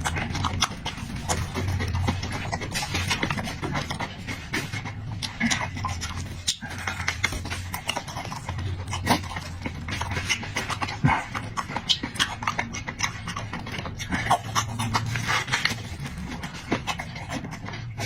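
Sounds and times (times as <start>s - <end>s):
low steady hum: 0.0s - 18.0s
wet chewing and lip smacks: 0.0s - 18.0s.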